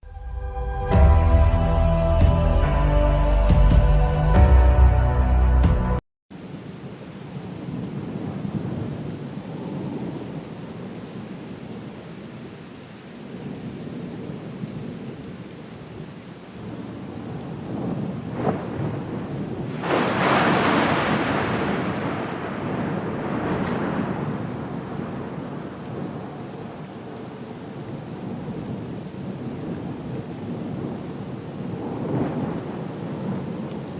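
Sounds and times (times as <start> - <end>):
heavy rain: 0.8 - 33.9
thunder cracking and rumbling: 16.6 - 26.8, 31.6 - 33.9.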